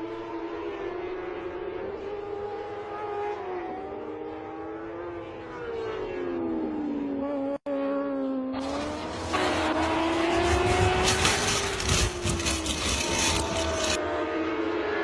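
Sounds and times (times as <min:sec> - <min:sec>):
race motorcycle engines revving: 0:08.5 - 0:14.0
loud rushing noise: 0:09.1 - 0:14.0.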